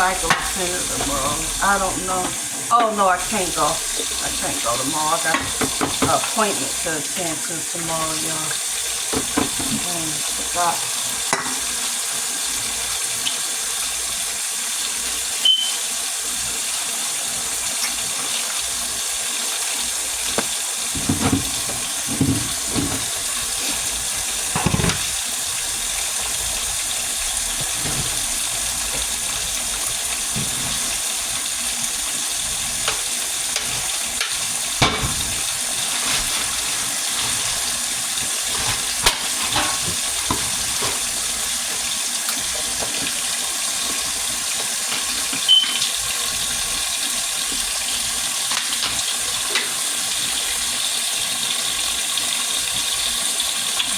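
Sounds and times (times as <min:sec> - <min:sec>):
tap running into sink: 0:05.3 - 0:06.4, 0:08.5 - 0:10.0, 0:20.2 - 0:32.2, 0:32.8 - 0:36.2, 0:37.2 - 0:46.0.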